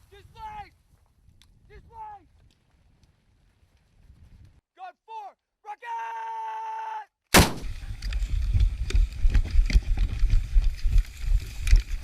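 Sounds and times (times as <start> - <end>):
mortar firing blast: 7.4 - 7.8.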